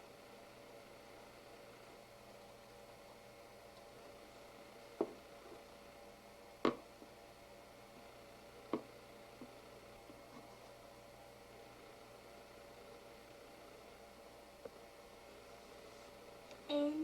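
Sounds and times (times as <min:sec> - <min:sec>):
room hum: 0:00.0 - 0:17.0.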